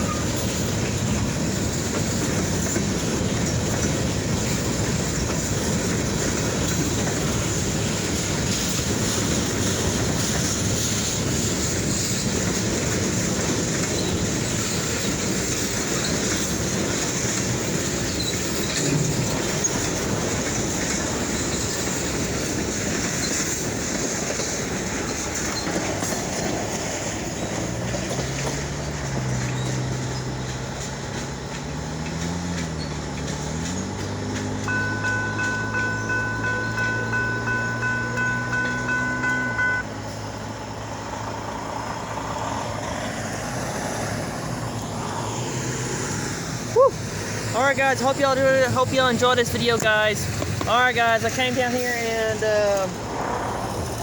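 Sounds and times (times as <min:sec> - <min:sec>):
train wheels on track: 0:00.0 - 0:54.0
low wavering drone: 0:34.7 - 0:39.8.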